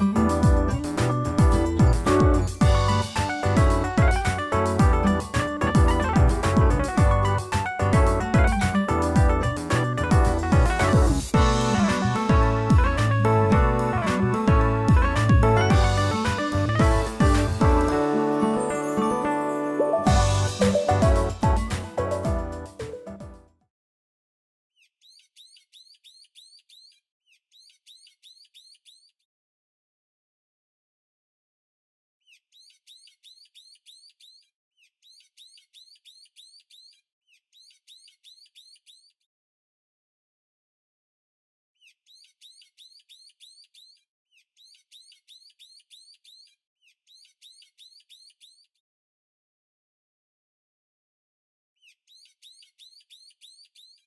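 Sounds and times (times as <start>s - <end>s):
bird chirping: 24.8s - 29.2s, 32.2s - 39.2s, 41.8s - 48.8s, 51.8s - 54.0s.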